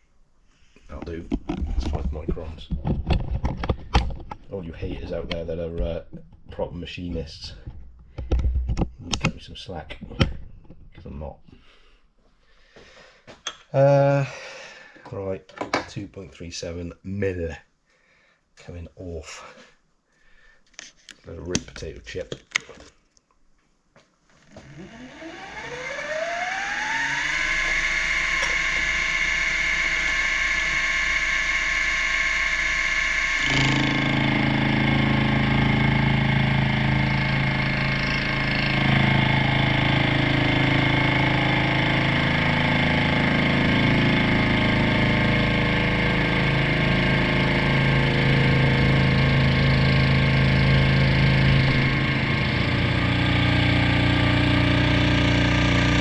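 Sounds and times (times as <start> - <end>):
milling machine spindle whine: 24.3 - 56.0
low cutting drone: 24.4 - 56.0.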